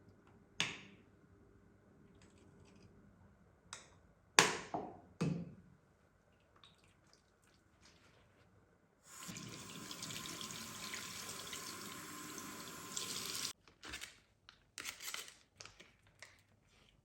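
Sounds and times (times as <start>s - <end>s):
water running: 9.1s - 13.6s.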